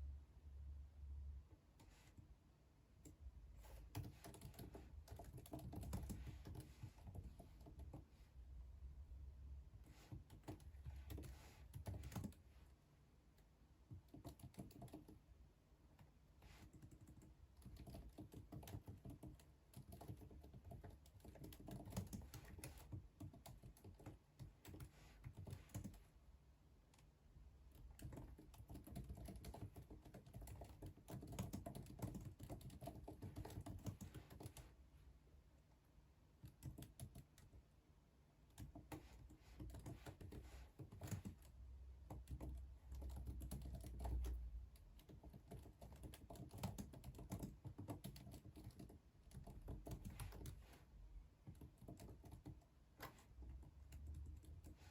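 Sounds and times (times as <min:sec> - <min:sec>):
typing on computer keyboard: 0:03.0 - 0:08.1, 0:09.8 - 0:12.5, 0:13.8 - 0:15.3, 0:16.0 - 0:26.0, 0:27.7 - 0:34.7, 0:36.4 - 0:37.6, 0:38.5 - 0:50.8, 0:51.4 - 0:54.9.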